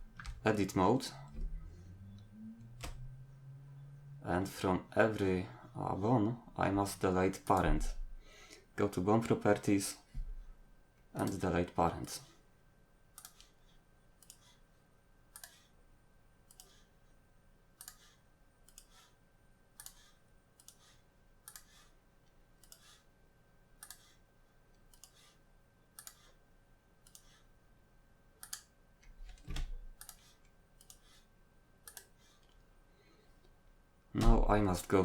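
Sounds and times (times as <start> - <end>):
computer mouse clicks: 13.2 - 13.6, 14.2 - 14.6, 15.3 - 15.7, 16.5 - 16.9, 17.8 - 19.1, 19.8 - 21.9, 22.6 - 23.0, 23.8 - 24.2, 24.8 - 26.4, 27.0 - 27.4, 28.4 - 31.2, 31.8 - 32.6.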